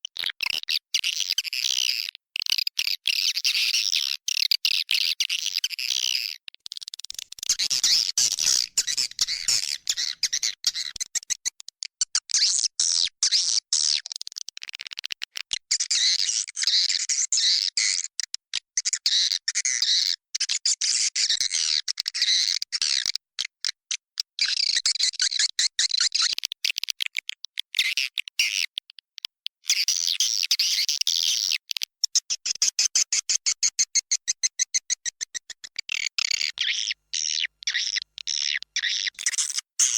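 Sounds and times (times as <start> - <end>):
swiftlets chirping and twittering: 35.9 - 39.9.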